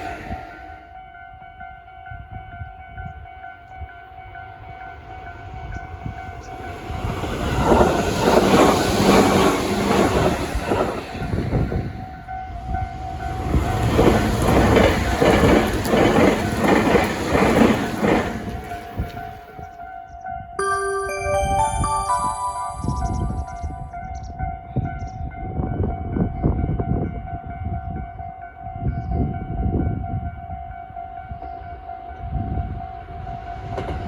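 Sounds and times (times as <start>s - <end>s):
level crossing warning bell: 20.6s - 24.0s.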